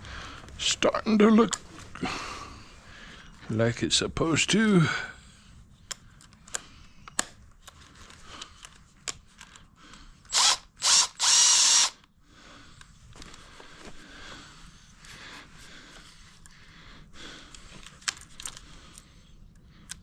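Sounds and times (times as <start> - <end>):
power tool running: 10.3 - 12.0.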